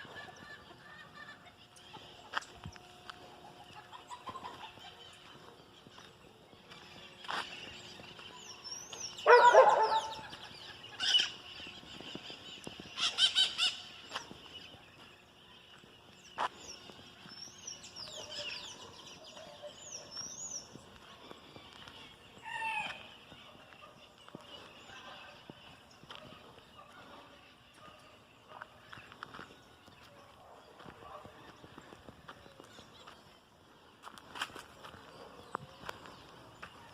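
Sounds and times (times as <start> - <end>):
small birds chirping: 0.0 - 36.9
farmyard fowl calling: 13.0 - 14.2, 22.4 - 23.1.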